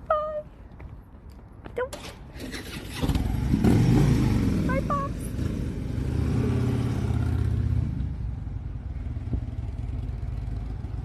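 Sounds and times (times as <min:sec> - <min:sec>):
motorcycle engine pulling away: 0:02.4 - 0:11.0.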